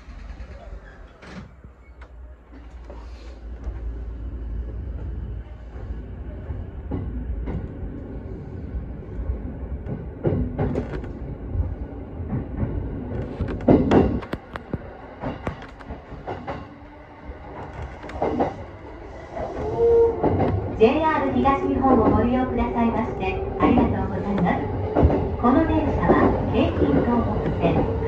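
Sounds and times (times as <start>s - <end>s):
train running rumble: 0.0s - 28.0s.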